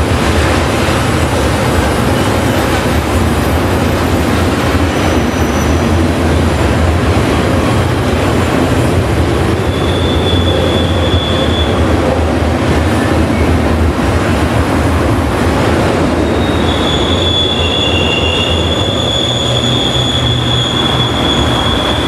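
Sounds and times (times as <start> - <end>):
train wheels rumbling on rail: 0.0 - 22.0
high wheel squeals: 2.0 - 6.0, 9.5 - 12.1, 16.2 - 22.0.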